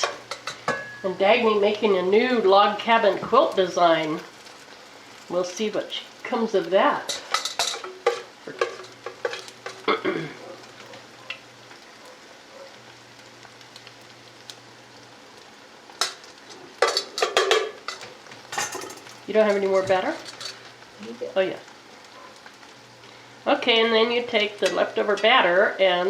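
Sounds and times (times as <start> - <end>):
batter sizzling in a frying pan: 0.0 - 26.0
utensil scraping a pan: 7.0 - 9.9.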